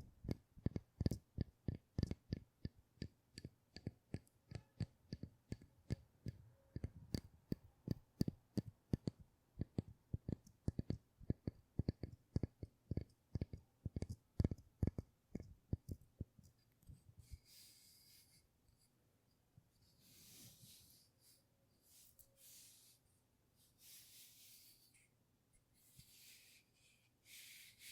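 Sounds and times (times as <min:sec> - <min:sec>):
soft hissing: 0:19.7 - 0:27.9.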